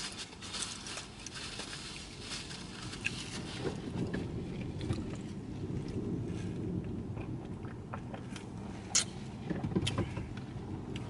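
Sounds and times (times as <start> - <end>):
steady low rumble: 0.0 - 11.0
person chewing: 7.2 - 9.2.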